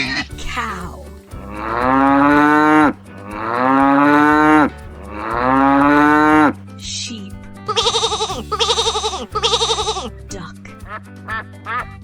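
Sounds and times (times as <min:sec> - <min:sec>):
cow mooing: 0:01.4 - 0:06.6.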